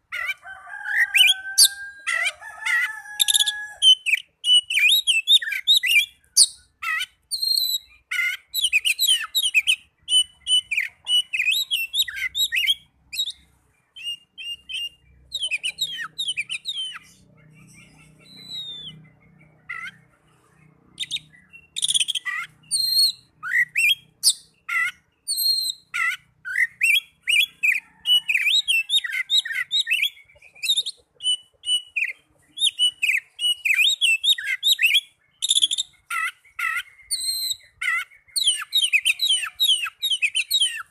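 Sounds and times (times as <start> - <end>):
magpie-robin singing: 0.0 - 40.9.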